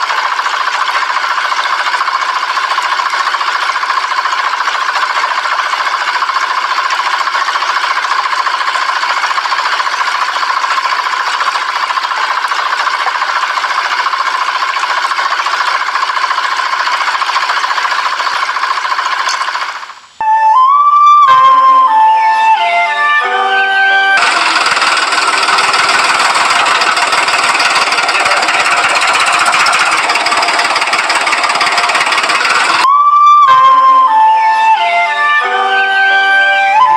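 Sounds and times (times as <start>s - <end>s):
model diesel engine chattering: 0.0s - 20.2s, 24.2s - 32.9s.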